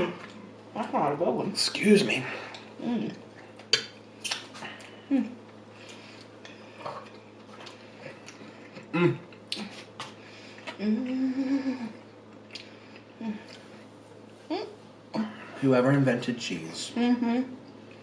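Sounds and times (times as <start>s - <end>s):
person humming: 10.8s - 12.0s, 13.2s - 13.6s.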